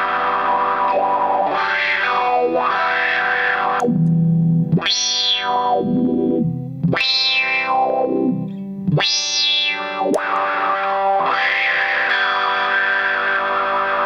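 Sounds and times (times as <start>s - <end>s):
distorted electric guitar chords: 0.0s - 14.0s.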